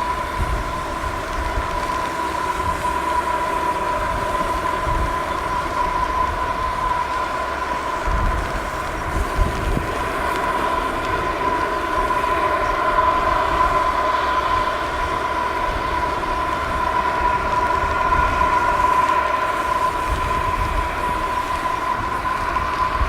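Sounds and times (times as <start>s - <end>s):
turboprop engines whining: 0.0s - 23.0s.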